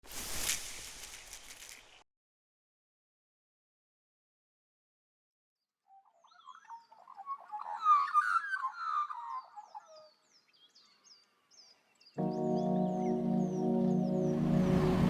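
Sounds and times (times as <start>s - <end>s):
chirping warbling wildlife calls: 5.9s - 15.0s
high falling chirps: 12.2s - 15.0s.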